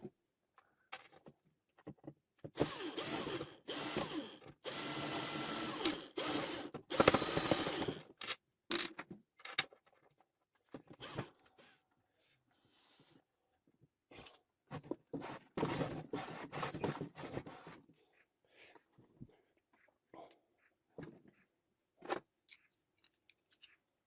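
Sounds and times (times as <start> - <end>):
electric drill running: 2.6 - 8.0.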